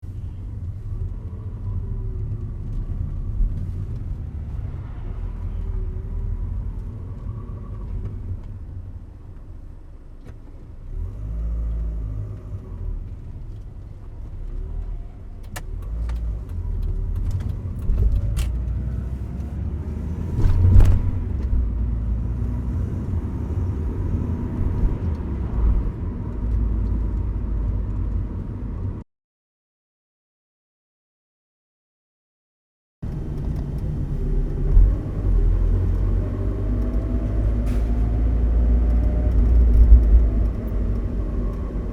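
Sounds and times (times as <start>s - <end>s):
car engine rumble: 0.0s - 29.0s, 33.0s - 41.9s
whine over engine: 16.4s - 27.6s, 33.1s - 41.9s.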